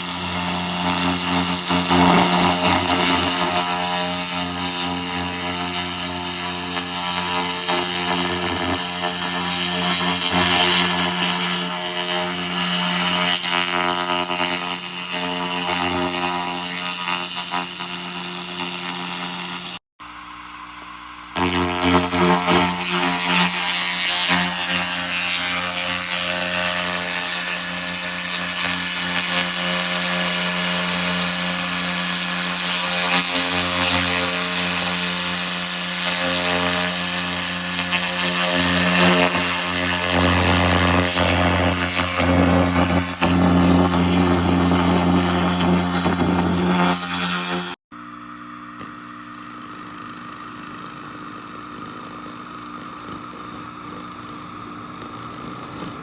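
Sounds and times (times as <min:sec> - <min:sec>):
laser blasting rust off metal: 0:00.0 - 0:19.8, 0:21.2 - 0:47.8
machine hum: 0:40.0 - 0:56.0.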